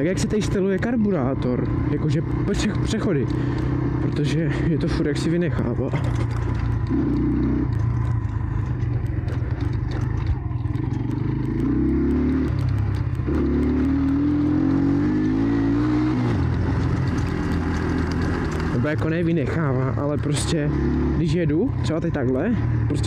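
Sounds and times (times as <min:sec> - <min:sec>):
motorcycle engine revving: 0:00.0 - 0:23.0
light clattering: 0:05.6 - 0:11.4.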